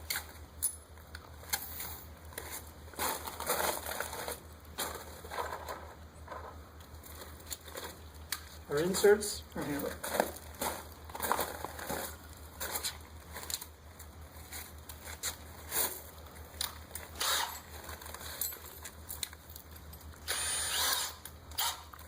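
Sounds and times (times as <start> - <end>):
scraping rustling noise: 1.4 - 8.6, 9.8 - 19.0.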